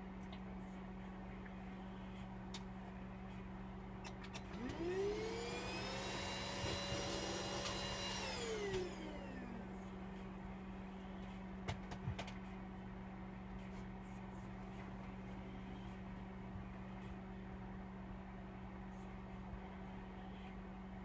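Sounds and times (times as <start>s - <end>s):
small electric motor whining: 4.6s - 9.7s.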